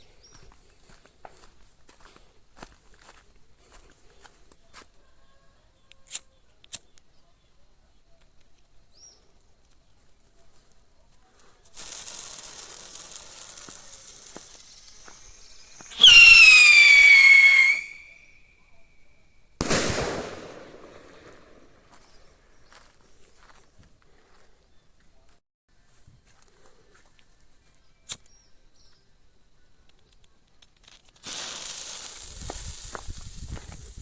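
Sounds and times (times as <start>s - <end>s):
firework hiss: 11.7s - 18.3s, 19.6s - 21.8s, 31.2s - 34.0s
firework whistle falling in pitch: 15.7s - 18.4s
firework bang: 19.6s - 22.0s.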